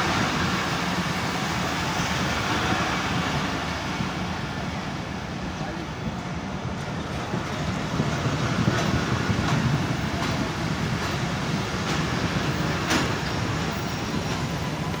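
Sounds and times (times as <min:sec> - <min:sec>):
train wheels rumbling on rails: 0:00.0 - 0:15.0
wheels clacking over rail joints: 0:06.8 - 0:15.0.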